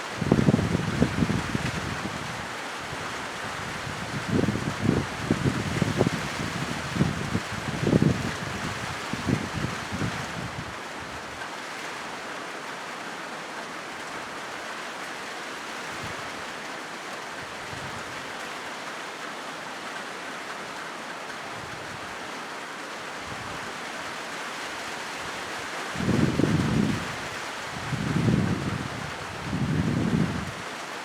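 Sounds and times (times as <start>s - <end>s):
rain drumming on a metal roof: 0.0s - 31.0s.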